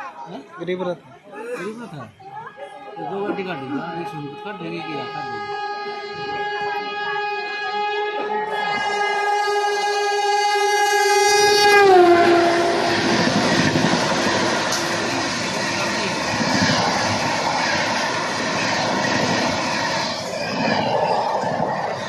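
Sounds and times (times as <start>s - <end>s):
locomotive horn: 2.9s - 22.0s
train coaches rumbling: 4.9s - 22.0s.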